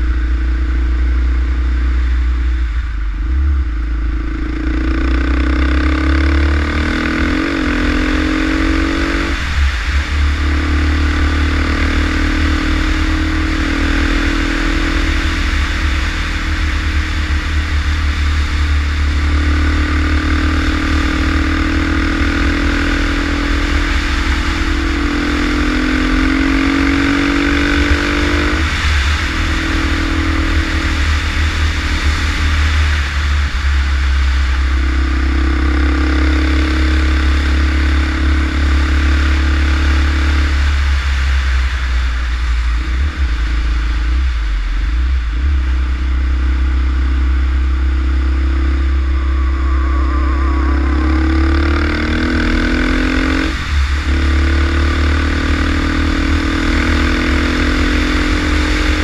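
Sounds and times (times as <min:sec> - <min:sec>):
motorcycle engine revving: 0:00.0 - 0:59.0
wind rumble on microphone: 0:00.0 - 0:59.0.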